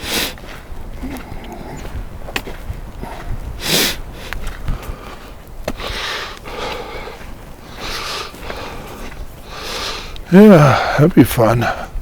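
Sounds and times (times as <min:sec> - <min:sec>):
sharp sniff: 0:00.0 - 0:00.4, 0:03.6 - 0:04.4
person breathing hard: 0:00.0 - 0:01.9, 0:03.0 - 0:11.0.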